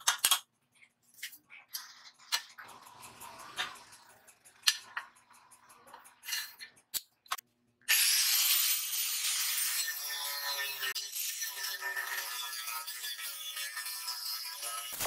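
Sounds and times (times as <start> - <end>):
angle grinder cutting steel: 7.9 - 15.0.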